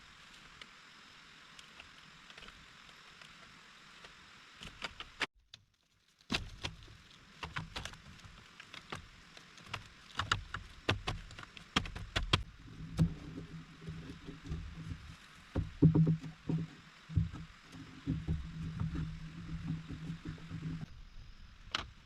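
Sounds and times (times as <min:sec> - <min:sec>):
rain hissing: 0:00.0 - 0:05.3, 0:06.6 - 0:22.0
sharp clicks and knocks: 0:07.4 - 0:20.9
dull low thumps: 0:12.4 - 0:21.2.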